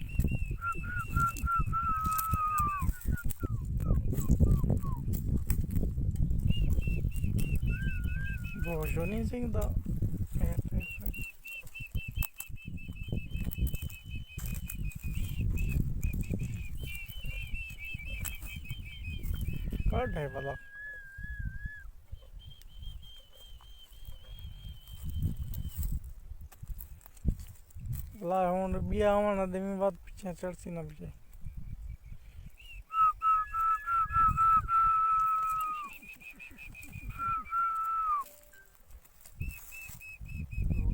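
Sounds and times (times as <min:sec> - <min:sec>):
person whistling: 0:00.0 - 0:05.1, 0:06.4 - 0:09.3, 0:10.6 - 0:25.8, 0:31.8 - 0:38.8, 0:39.4 - 0:40.9
small bird chirping: 0:10.9 - 0:20.4, 0:22.1 - 0:25.9.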